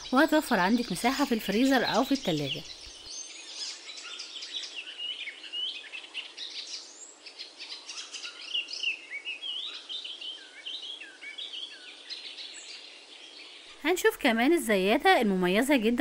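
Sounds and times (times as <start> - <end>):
birds chirping and singing: 0.0 - 16.0.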